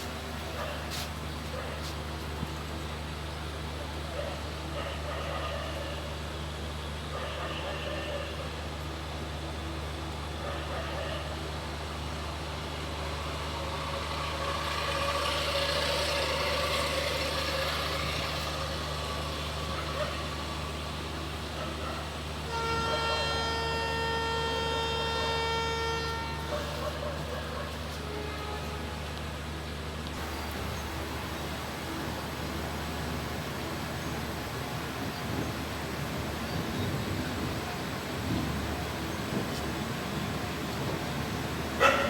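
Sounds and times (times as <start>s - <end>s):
train humming: 0.0s - 42.0s
train horn blast: 12.7s - 29.5s, 35.2s - 42.0s.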